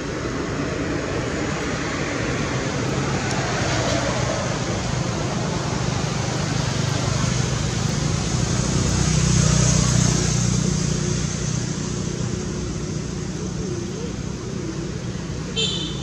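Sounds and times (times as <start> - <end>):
vehicle engine passing: 0.0 - 15.5
road noise: 0.0 - 16.0.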